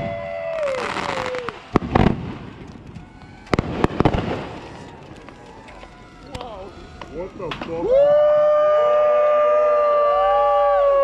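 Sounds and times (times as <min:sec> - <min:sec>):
firework hiss and crackle: 0:00.0 - 0:08.3
whistling firework tone: 0:00.0 - 0:11.0
firework mortar bangs: 0:00.8 - 0:05.5.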